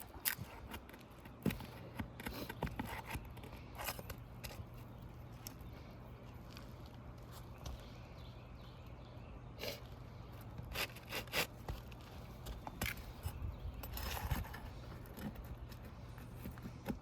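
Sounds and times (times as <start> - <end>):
pry bar scraping: 0.0 - 5.6, 10.4 - 17.0.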